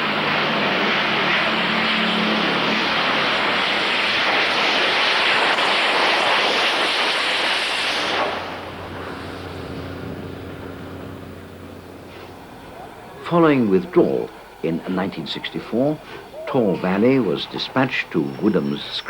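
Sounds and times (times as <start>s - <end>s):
steam train running at speed: 0.0s - 19.0s
steady hum: 7.8s - 19.0s.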